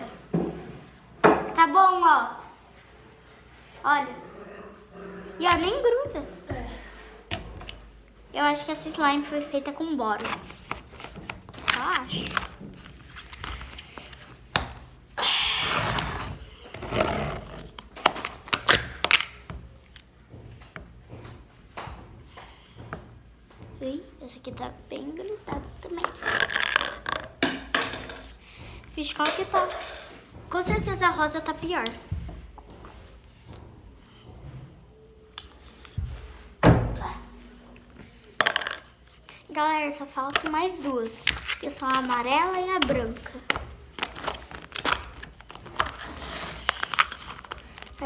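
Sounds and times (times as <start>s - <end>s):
slime squishing and rustling: 5.4s - 27.4s, 38.2s - 48.0s.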